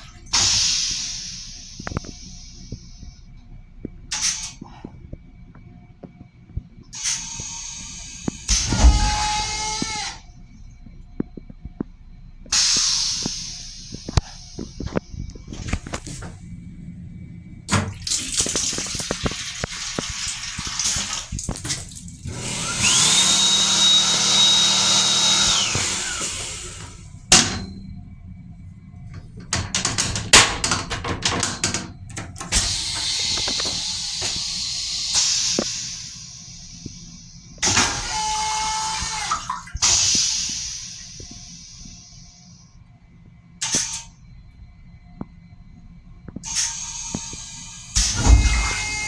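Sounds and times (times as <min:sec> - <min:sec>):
toilet flushing: 0:00.0 - 0:04.8, 0:06.9 - 0:10.4, 0:12.5 - 0:16.9, 0:17.6 - 0:42.5, 0:43.6 - 0:44.2, 0:46.4 - 0:49.0
running water: 0:17.7 - 0:27.3.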